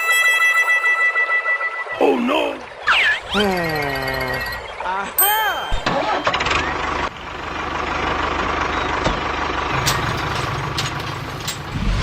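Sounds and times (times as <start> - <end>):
engine chugging: 2.8 - 12.0.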